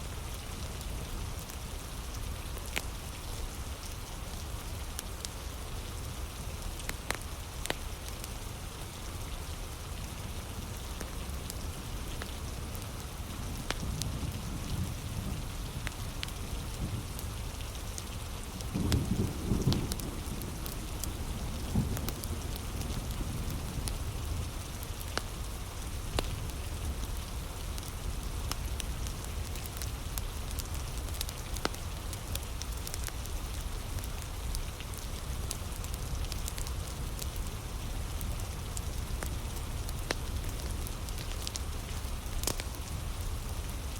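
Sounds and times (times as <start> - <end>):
steady heavy rain: 0.0 - 43.9
wood fire crackling: 0.1 - 43.9
low thunder rumbles: 18.6 - 24.6.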